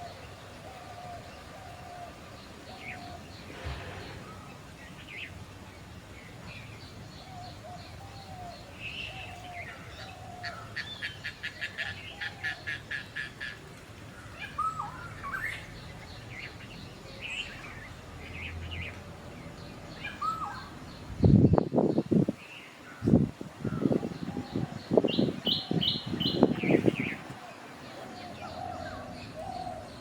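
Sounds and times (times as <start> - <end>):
birds chirping and calling: 0.0 - 30.0
whistled bird calls: 14.4 - 15.7, 20.0 - 20.7.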